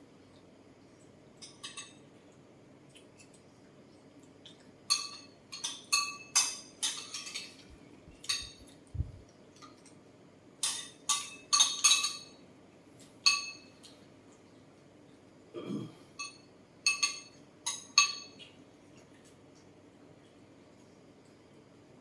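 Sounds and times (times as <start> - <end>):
cutlery clinking against dish: 1.4 - 2.0, 4.9 - 8.8, 10.6 - 12.4, 13.2 - 14.0, 16.2 - 18.5.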